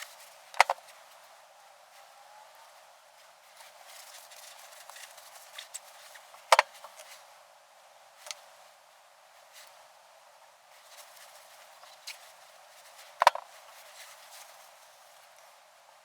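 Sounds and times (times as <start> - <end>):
light rubbing and ticking: 0.0 - 7.3, 10.7 - 15.5.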